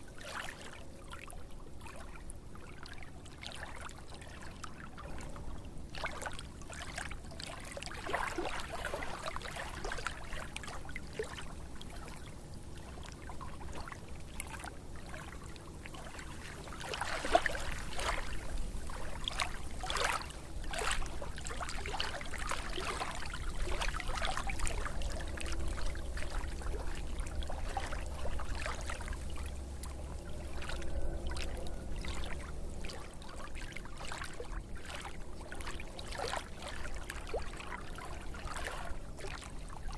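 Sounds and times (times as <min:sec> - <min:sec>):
water splashing and trickling: 0:00.0 - 0:39.9
low rumble: 0:23.6 - 0:36.0.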